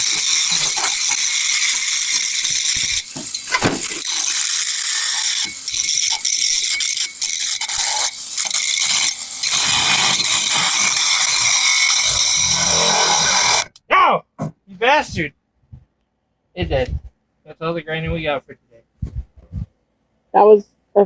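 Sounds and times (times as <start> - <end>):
power grinder grinding metal pipe: 0.0 - 13.8.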